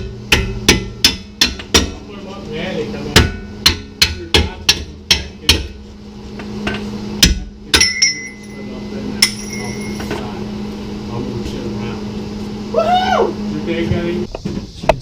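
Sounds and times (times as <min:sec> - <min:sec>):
hammer striking metal: 0:00.0 - 0:02.0, 0:03.1 - 0:05.8, 0:06.6 - 0:10.2
steady low hum: 0:00.0 - 0:15.0.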